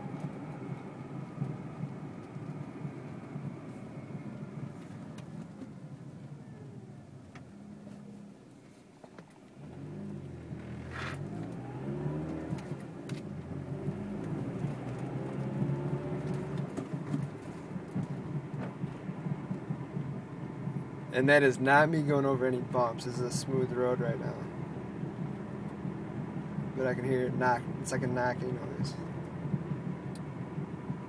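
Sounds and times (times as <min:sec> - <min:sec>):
road and engine noise: 0:00.0 - 0:31.0
dull knocking from wheel: 0:14.2 - 0:20.9, 0:29.3 - 0:31.0.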